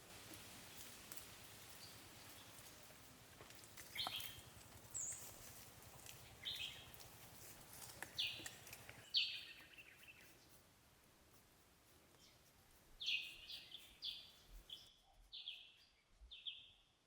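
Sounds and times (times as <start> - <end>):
birds chirping: 3.9 - 7.0, 8.0 - 10.6, 12.0 - 16.7.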